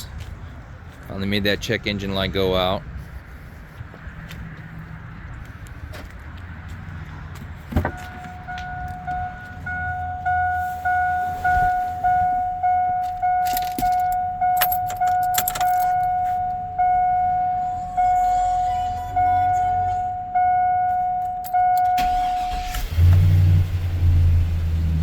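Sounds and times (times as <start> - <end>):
car warning chime dinging: 7.8 - 23.1
keys rattling: 13.0 - 16.4.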